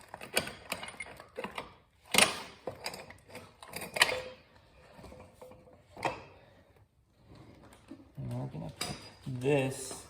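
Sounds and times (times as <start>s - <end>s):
metal chain clicking and rattling: 0.0s - 4.4s.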